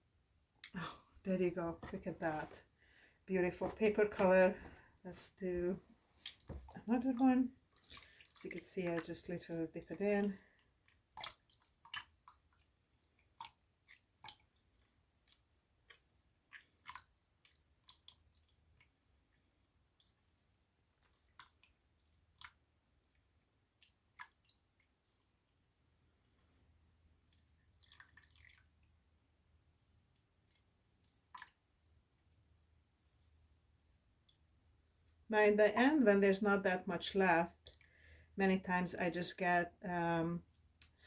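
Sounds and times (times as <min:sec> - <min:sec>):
water dripping and trickling: 0:00.6 - 0:41.0.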